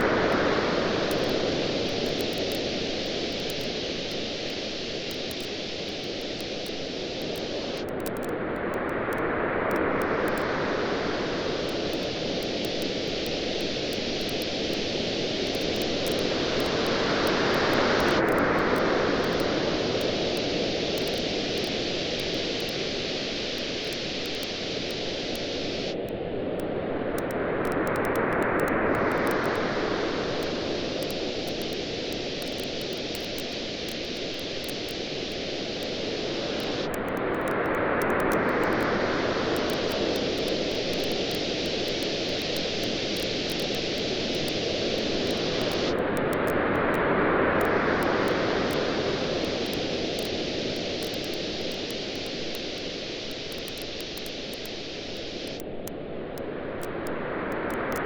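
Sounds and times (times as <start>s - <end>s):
waves washing on beach: 0.0s - 7.8s, 8.6s - 55.6s
bonfire crackling: 11.5s - 25.5s, 39.6s - 46.0s.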